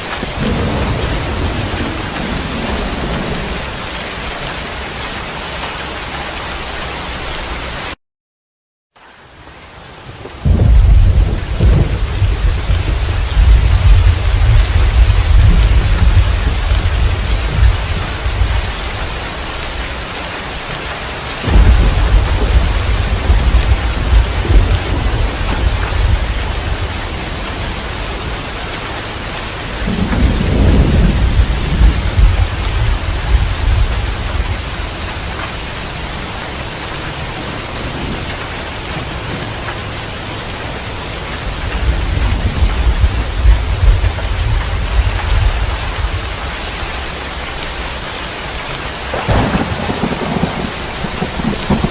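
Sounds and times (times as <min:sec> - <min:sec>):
heavy rain falling: 0:00.0 - 0:08.0, 0:09.0 - 0:51.9
low rolling thunder: 0:00.2 - 0:03.9, 0:10.4 - 0:19.8, 0:21.4 - 0:36.0, 0:41.5 - 0:47.2, 0:49.1 - 0:51.9.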